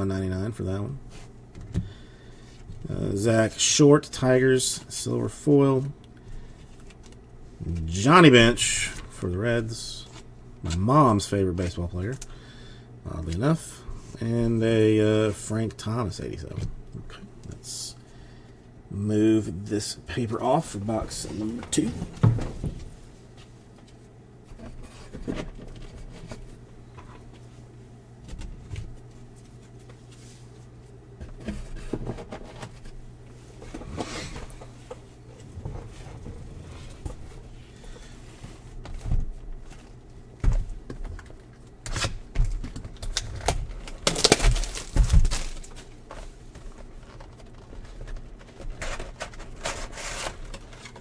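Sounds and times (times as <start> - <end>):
paper and packaging crinkling: 41.2 - 51.0
packaging tearing: 43.0 - 45.9.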